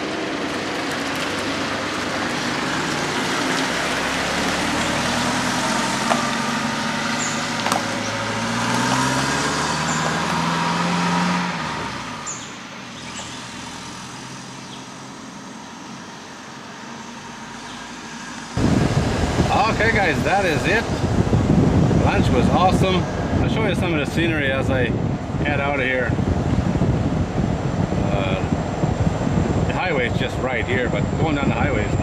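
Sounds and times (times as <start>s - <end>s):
vehicle passing by: 0.0s - 23.8s.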